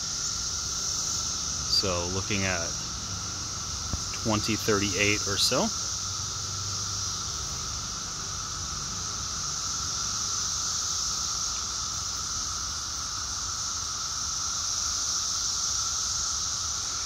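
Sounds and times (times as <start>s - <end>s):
cicadas chorus: 0.0s - 17.0s.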